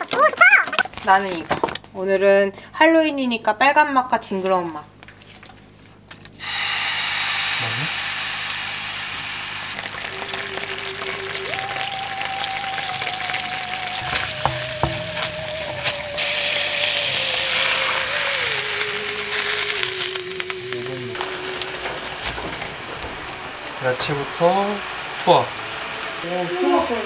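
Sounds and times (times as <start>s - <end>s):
paste sizzling in oil: 6.4s - 26.7s
slow wavering background music: 10.0s - 27.0s.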